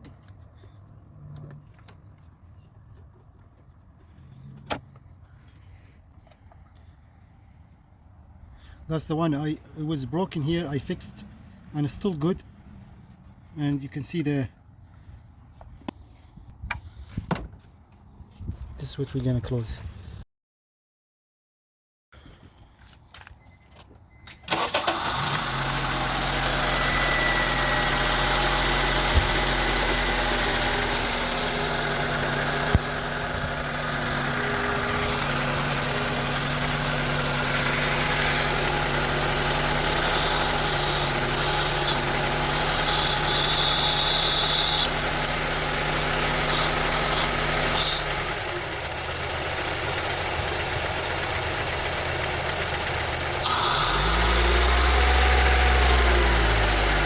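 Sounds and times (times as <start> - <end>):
car engine starting: 24.4 - 57.0
car engine idling roughly: 25.6 - 57.0.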